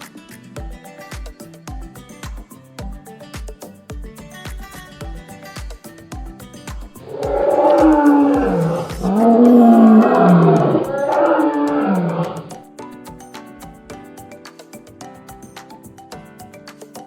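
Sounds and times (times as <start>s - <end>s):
plucked background music: 0.0s - 17.0s
dinosaur roar: 7.0s - 12.5s.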